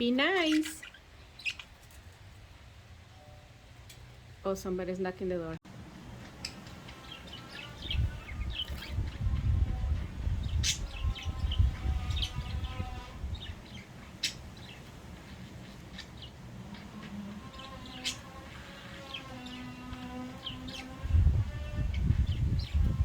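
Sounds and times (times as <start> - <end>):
budgerigars chirping: 0.3 - 1.8, 10.4 - 21.0.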